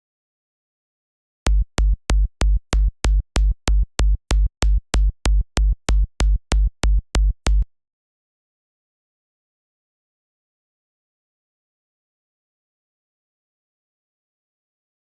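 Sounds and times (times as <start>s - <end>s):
electronic kick drum: 1.5s - 7.7s.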